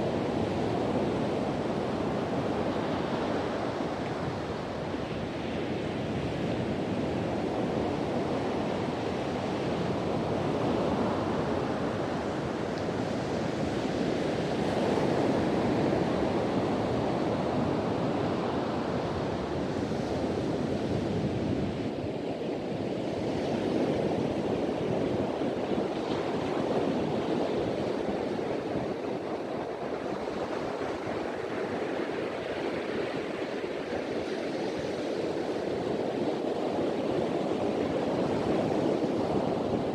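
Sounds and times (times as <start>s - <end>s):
ocean waves breaking on beach: 0.0s - 39.9s
wind: 0.0s - 39.9s.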